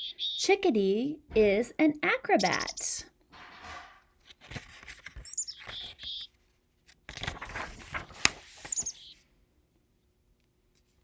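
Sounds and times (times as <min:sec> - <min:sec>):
paper rustling: 0:03.4 - 0:09.1.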